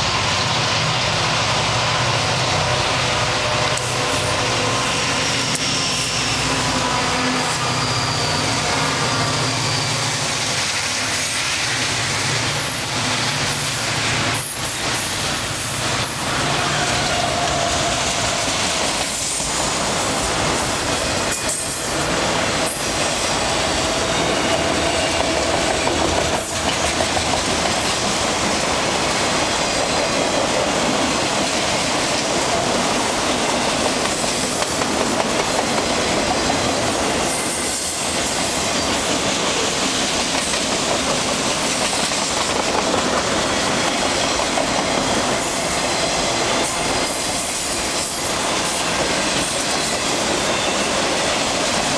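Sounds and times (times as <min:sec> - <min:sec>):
wheel squeal on rail: 0:00.0 - 0:27.0, 0:35.4 - 0:40.0, 0:43.5 - 0:51.9
train wheels clacking on rails: 0:00.0 - 0:51.9.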